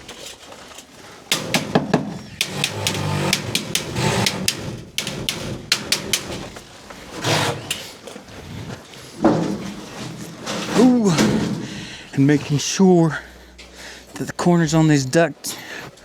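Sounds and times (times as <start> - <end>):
metallic clicks and knocks: 1.3 - 6.8.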